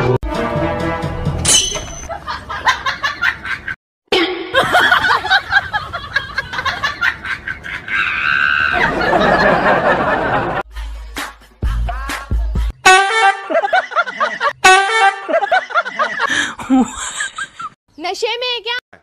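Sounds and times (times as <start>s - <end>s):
laughter in short bursts: 15.3s - 17.7s.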